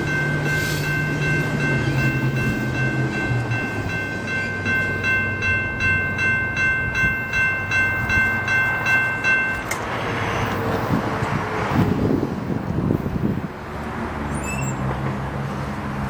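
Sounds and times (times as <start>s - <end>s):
railroad crossing bell ringing: 0.0s - 11.4s
train cars rolling past: 0.0s - 16.0s.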